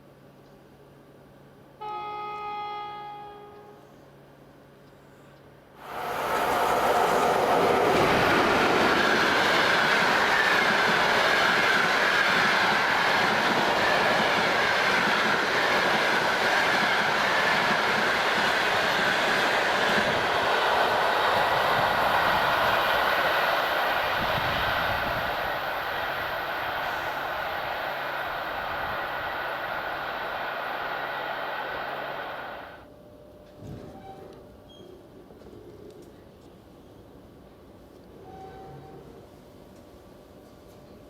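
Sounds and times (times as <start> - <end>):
train wheels on rails: 5.8 - 34.4
wavering high whine: 7.0 - 32.8.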